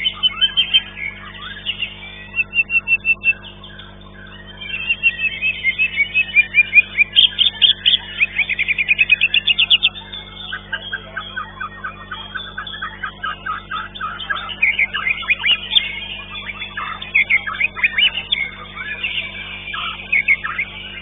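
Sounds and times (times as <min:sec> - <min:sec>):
songbird singing trills: 0:00.0 - 0:21.0.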